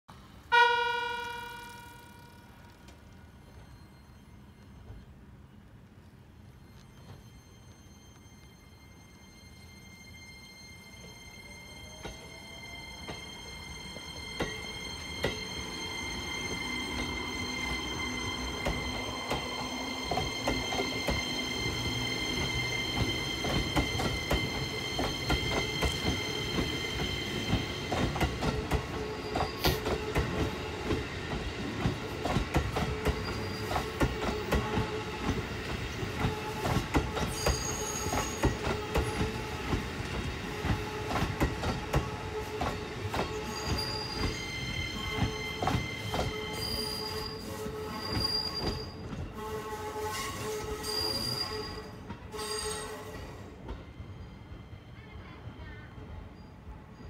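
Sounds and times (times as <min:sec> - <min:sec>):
train wheels squealing: 0:03.2 - 0:57.0
train wheels clicking over rail joints: 0:16.9 - 0:44.4.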